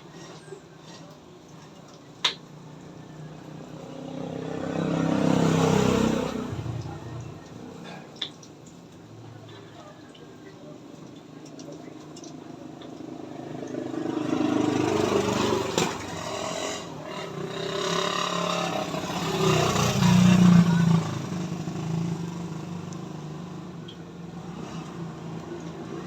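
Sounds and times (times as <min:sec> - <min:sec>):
vehicle engine passing by: 0:03.3 - 0:07.8, 0:13.3 - 0:26.0.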